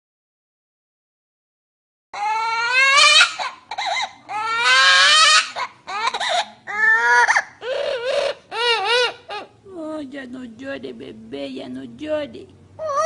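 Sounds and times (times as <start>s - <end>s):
bird imitating crying baby: 2.2s - 9.6s, 12.8s - 13.0s.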